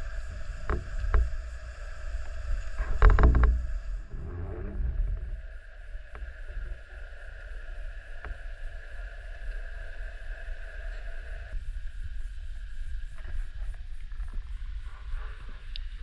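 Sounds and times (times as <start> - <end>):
faint clicks: 0.0 - 6.8, 15.6 - 16.0
muffled rumble of moving water: 0.0 - 16.0.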